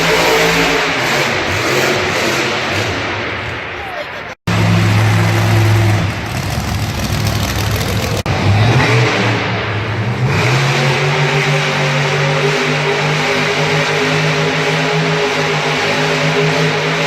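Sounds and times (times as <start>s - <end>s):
vehicle engine revving: 0.0s - 3.4s, 4.5s - 17.0s.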